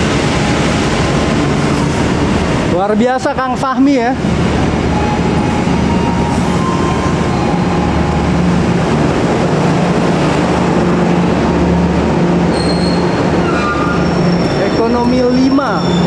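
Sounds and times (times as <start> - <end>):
train wheels rumbling on rails: 0.0 - 16.0
high wheel squeals: 12.5 - 16.0.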